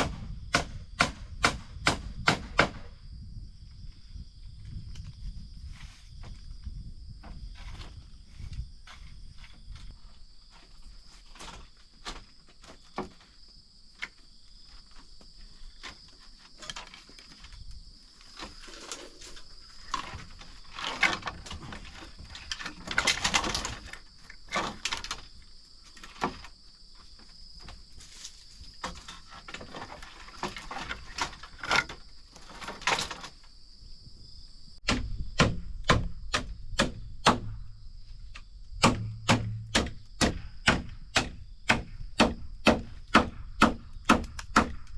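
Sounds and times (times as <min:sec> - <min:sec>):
chopping wood: 0:00.0 - 0:02.9, 0:34.8 - 0:37.6, 0:38.8 - 0:44.9
insect drone: 0:00.0 - 0:44.9
knocks and handling on wood: 0:10.5 - 0:15.2.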